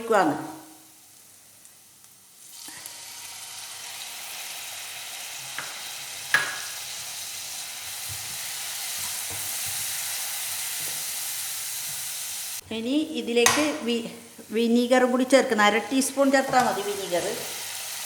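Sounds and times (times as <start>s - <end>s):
sauce sizzling in hot pan: 0.6s - 12.6s, 13.7s - 18.0s
spoon knocking against pan: 5.6s - 6.8s, 13.4s - 13.8s.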